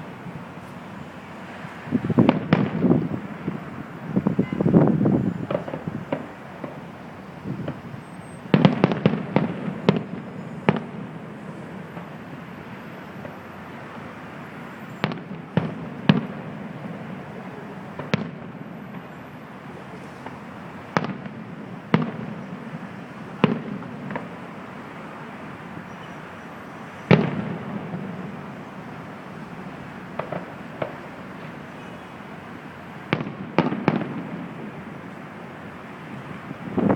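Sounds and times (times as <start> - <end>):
distant fireworks booming: 1.9 - 24.9, 25.6 - 32.2, 32.9 - 36.9.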